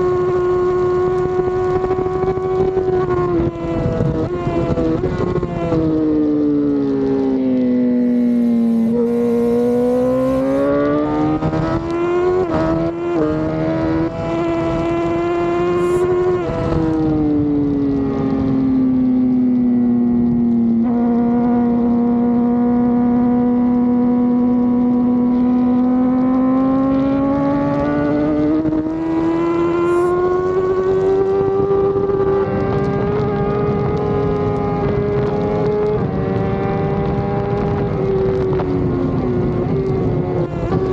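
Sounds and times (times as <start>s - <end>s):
racing motorcycle engine: 0.0s - 40.9s
wind rush: 7.9s - 19.0s.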